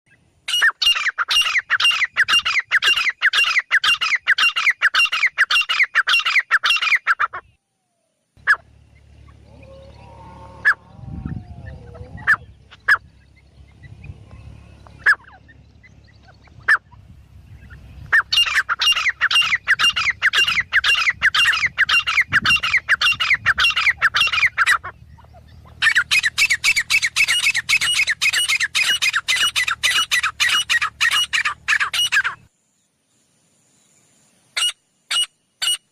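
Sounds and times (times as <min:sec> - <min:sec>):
bird harsh repeated calls: 0:00.1 - 0:07.6, 0:08.4 - 0:32.5, 0:34.5 - 0:35.9
faint low hum: 0:07.3 - 0:34.5.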